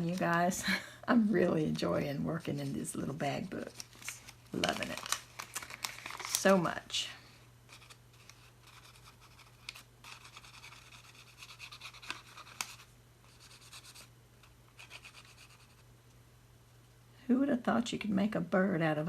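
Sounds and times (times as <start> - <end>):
art tool scratching on paper: 8.7 - 14.1, 14.8 - 15.8.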